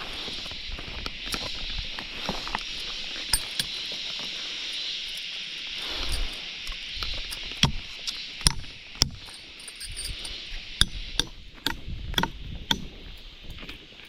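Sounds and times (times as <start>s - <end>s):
insects droning: 0.0s - 14.0s
tool striking something hard: 3.3s - 3.8s, 7.4s - 13.1s.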